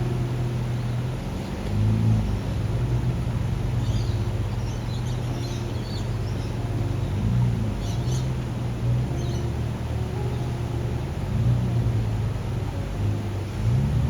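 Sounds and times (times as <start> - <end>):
birds chirping: 0.0 - 10.9
vehicle engine idling: 0.0 - 14.0.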